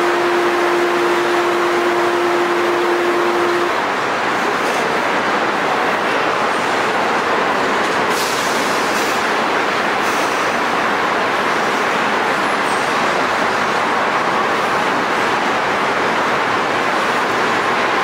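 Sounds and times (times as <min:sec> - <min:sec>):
steady tone: 0:00.0 - 0:03.8
train rolling past: 0:00.0 - 0:18.0.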